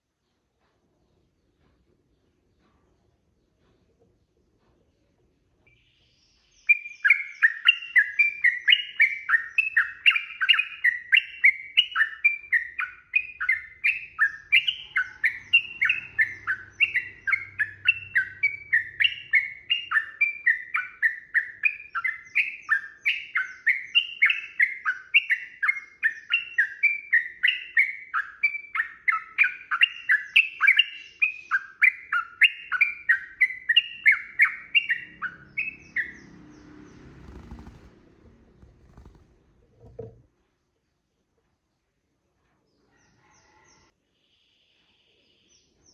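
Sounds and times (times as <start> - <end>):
bird singing chirpy phrases: 5.7 - 39.2.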